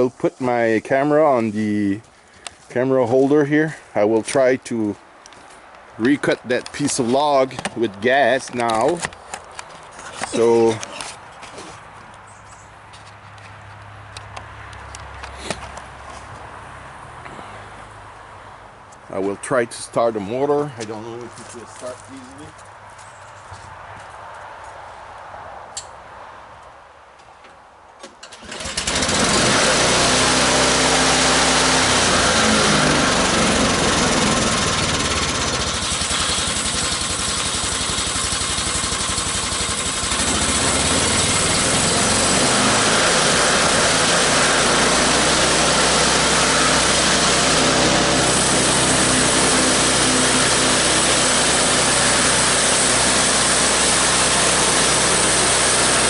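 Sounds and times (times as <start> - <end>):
gasoline sawmill engine: 28.2 - 56.0.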